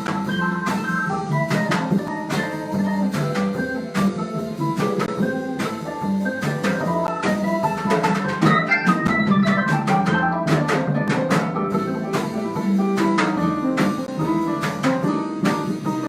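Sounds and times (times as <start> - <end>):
bass line: 0.0 - 16.0
drum kit beat: 0.0 - 16.0
plucked string notes: 6.8 - 12.3.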